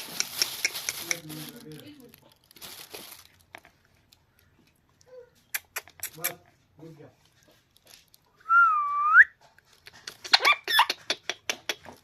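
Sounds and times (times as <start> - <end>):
parrot clicks and chirps: 5.4 - 6.4, 9.9 - 11.9.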